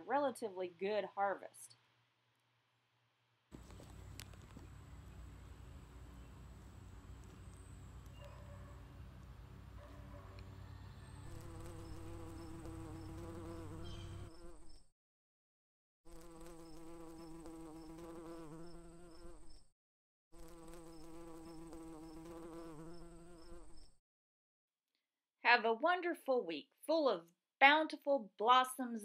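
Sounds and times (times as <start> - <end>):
insect buzzing: 11.1 - 14.8, 16.1 - 19.6, 20.4 - 24.0.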